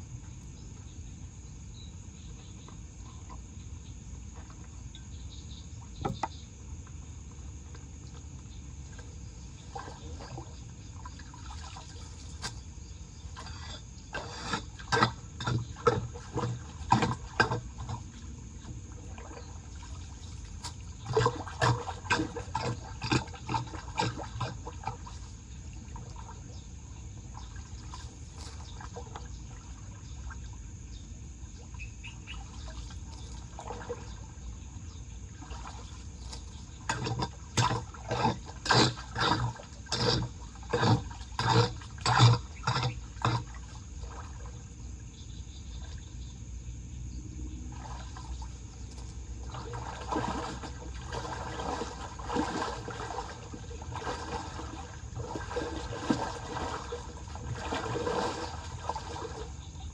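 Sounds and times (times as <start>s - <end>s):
short water splashes: 7.7s - 30.7s, 31.5s - 46.2s, 47.6s - 59.9s
water draining into storm drain: 13.4s - 26.5s, 35.4s - 44.5s, 49.3s - 59.9s.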